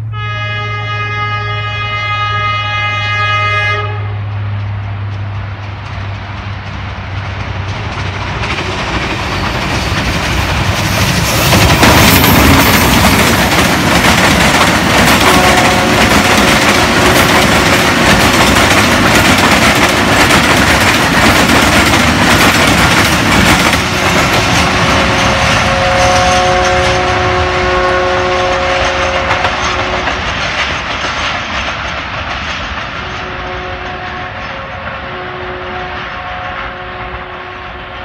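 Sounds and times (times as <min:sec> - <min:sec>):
train horn: 0:00.0 - 0:04.5, 0:15.0 - 0:17.4, 0:24.5 - 0:30.2, 0:33.0 - 0:38.0
train wheels clattering: 0:04.3 - 0:38.0.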